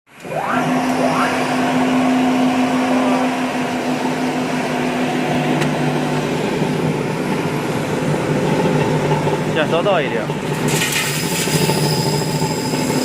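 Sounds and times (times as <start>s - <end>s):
electric motor humming and whirring: 0.1s - 9.5s
short rising whines: 0.1s - 9.6s, 10.4s - 13.0s.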